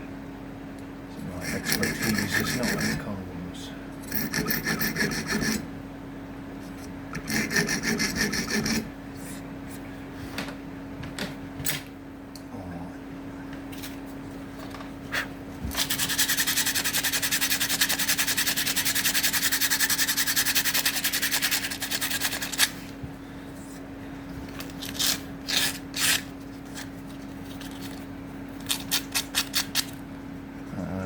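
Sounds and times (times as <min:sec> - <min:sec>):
abrasive strokes on wood: 0:01.3 - 0:03.1.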